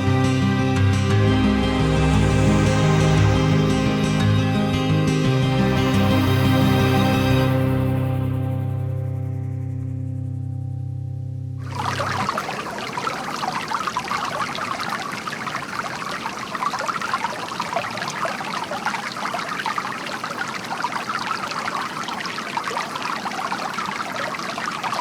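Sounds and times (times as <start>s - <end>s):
stream trickling over rocks: 11.6s - 25.0s.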